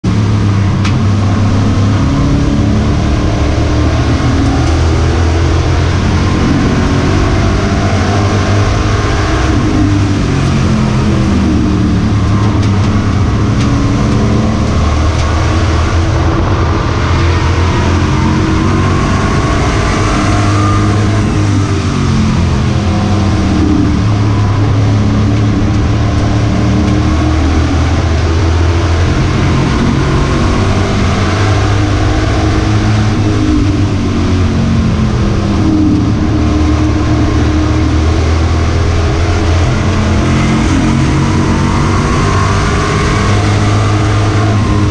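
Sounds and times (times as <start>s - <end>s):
racing truck engines: 0.0s - 44.9s.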